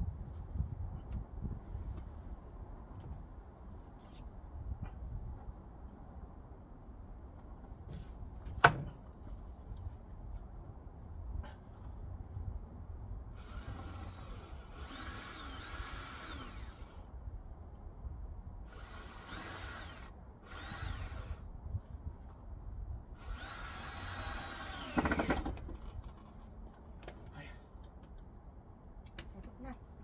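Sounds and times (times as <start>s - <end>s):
power drill driving screws: 13.4s - 17.0s, 18.7s - 21.4s, 23.2s - 25.6s.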